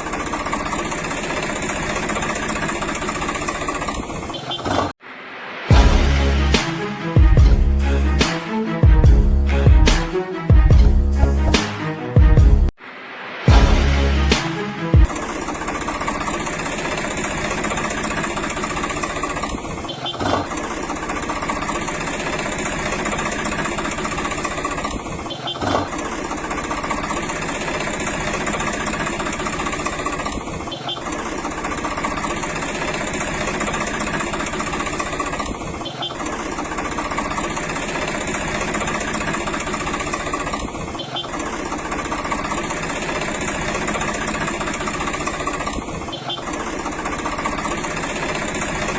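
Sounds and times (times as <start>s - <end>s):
small motor running: 15.1s - 48.9s.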